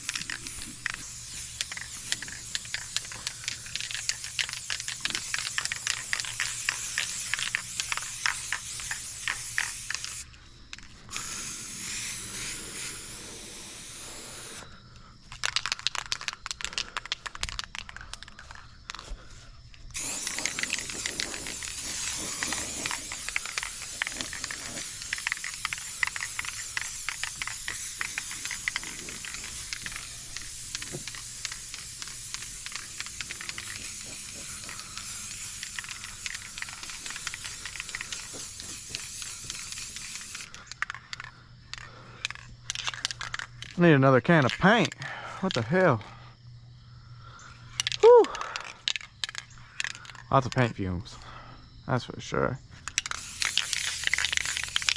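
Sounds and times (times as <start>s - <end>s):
spray can mixing ball rattling: 0.0s - 14.6s, 15.3s - 19.0s, 19.9s - 45.7s, 47.8s - 50.7s, 52.9s - 54.9s
spray paint can hissing: 0.0s - 14.6s, 15.3s - 19.0s, 19.9s - 43.8s, 52.9s - 54.9s.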